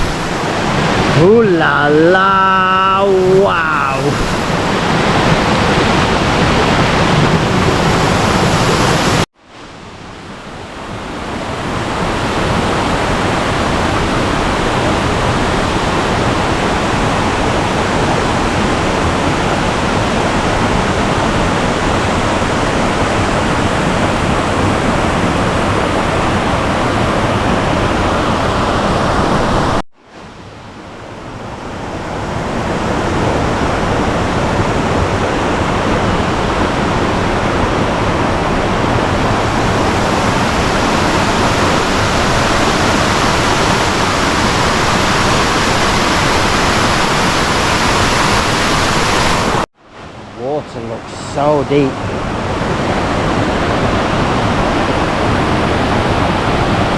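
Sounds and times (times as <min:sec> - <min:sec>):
waterfall rushing: 0:00.0 - 0:09.3, 0:32.3 - 0:56.9.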